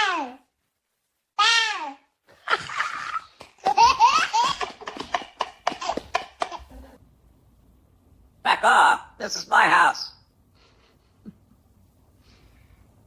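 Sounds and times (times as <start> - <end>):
high-pitched laughter: 2.3 - 7.0.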